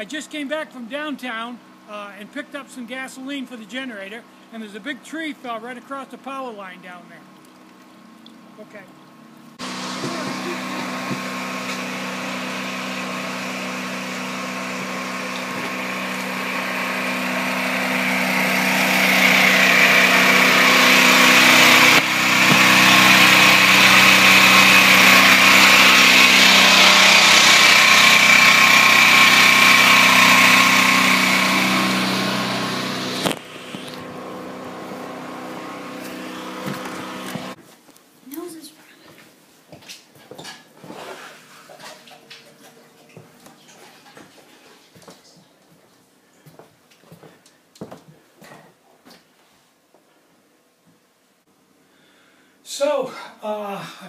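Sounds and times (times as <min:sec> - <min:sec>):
generator engine running: 0:08.4 - 0:37.6.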